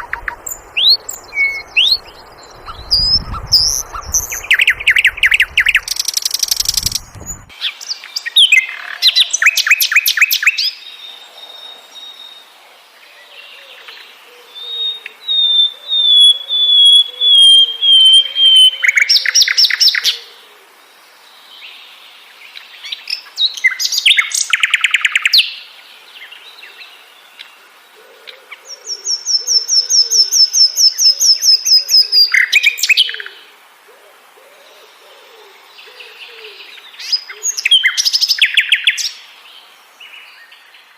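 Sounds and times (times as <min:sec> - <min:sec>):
flycatcher singing: 0:00.0 - 0:10.6.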